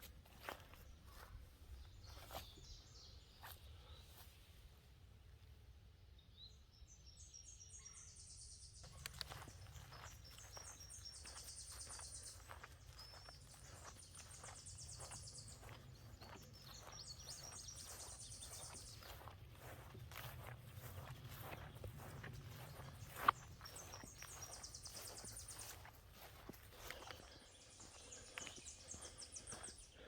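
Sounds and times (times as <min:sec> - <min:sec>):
footsteps on a trail: 0:00.0 - 0:04.4, 0:08.8 - 0:30.0
high rapid trilled bird song: 0:09.3 - 0:26.3.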